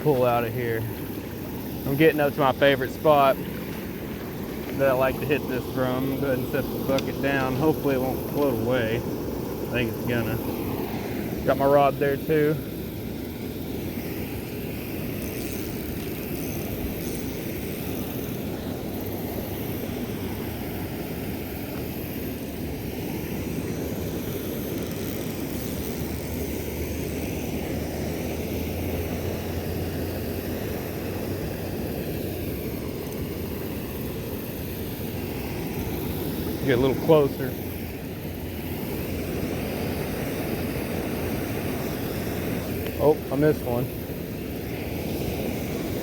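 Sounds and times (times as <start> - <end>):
water rushing over spillway: 25.4 - 46.0.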